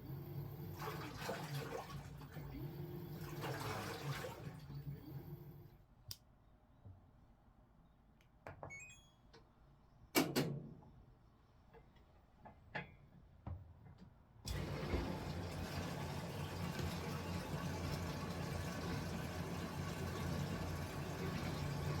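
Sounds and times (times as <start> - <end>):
washing machine running: 0.0 - 5.7, 14.5 - 22.0.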